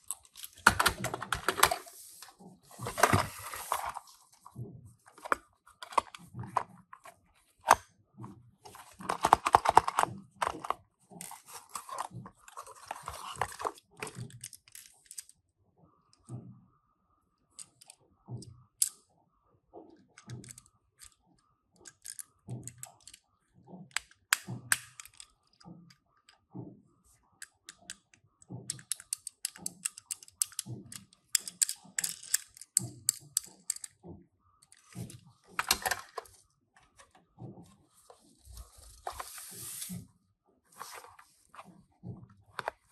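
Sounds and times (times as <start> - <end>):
toy cars clicking and knocking: 8.8 - 15.4, 21.8 - 23.2, 27.5 - 34.0.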